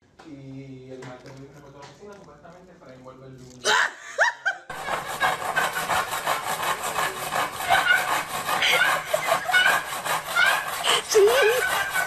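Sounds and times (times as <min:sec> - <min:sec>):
handsaw cutting wood: 0:04.7 - 0:12.0.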